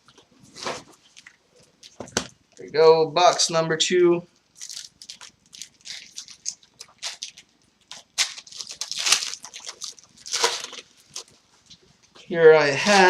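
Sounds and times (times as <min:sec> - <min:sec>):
card pack wrappers tearing: 0:04.6 - 0:11.3.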